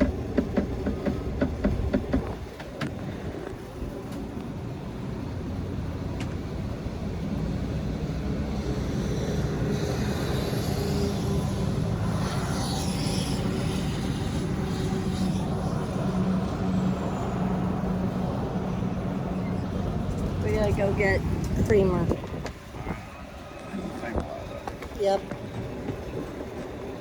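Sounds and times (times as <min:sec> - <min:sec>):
vehicle engine and road noise: 0:00.0 - 0:27.0.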